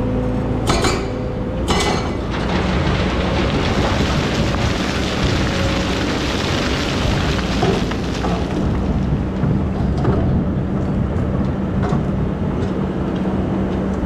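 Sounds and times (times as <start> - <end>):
excavator diesel engine: 0.0 - 14.0
sharp metallic knock: 0.6 - 1.1.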